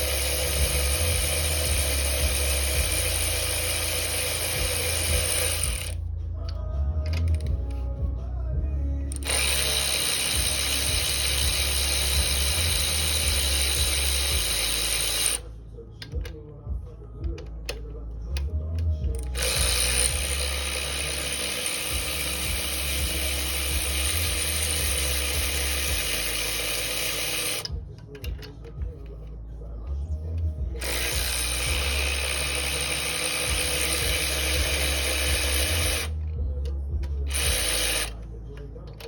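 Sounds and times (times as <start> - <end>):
power tool with high hiss: 0.0 - 5.9.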